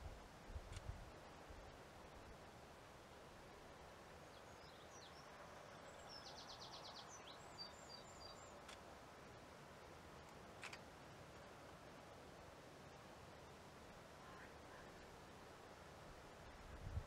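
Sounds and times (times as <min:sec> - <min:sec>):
faint songbird chirps and trill: 0:04.1 - 0:08.8.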